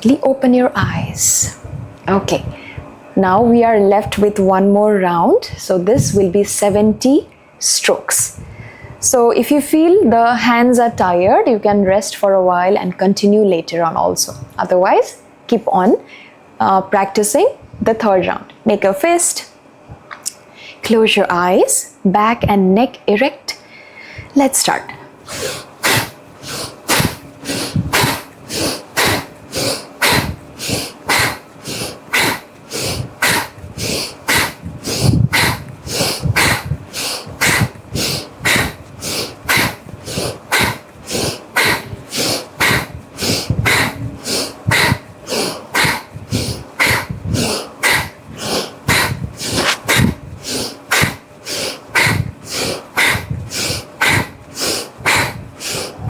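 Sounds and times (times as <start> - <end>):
rapid forceful nasal breathing: 25.2 - 56.0.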